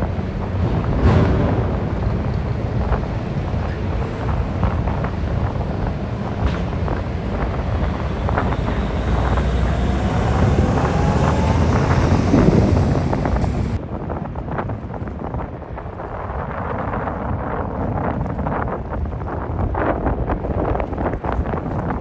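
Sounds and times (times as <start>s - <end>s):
wind buffeting microphone: 3.8s - 13.8s
truck engine rumbling: 4.0s - 13.8s
rising whine: 4.1s - 13.8s.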